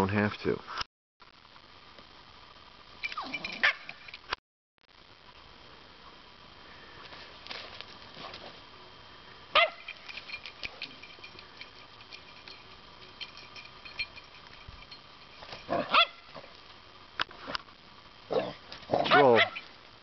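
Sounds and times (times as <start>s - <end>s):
dog barking: 9.6s - 9.8s, 15.8s - 16.2s, 18.3s - 19.6s.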